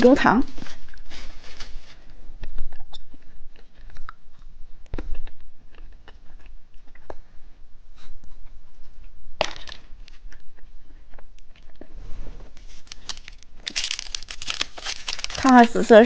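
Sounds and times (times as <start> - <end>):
plastic packaging crinkle: 12.6 - 16.0.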